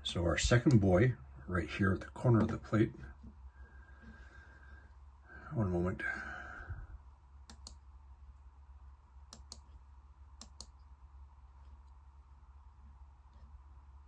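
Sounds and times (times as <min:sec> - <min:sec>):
low steady room hum: 0:00.0 - 0:14.0
computer mouse double-clicks: 0:07.5 - 0:07.8, 0:09.3 - 0:09.7, 0:10.4 - 0:10.8.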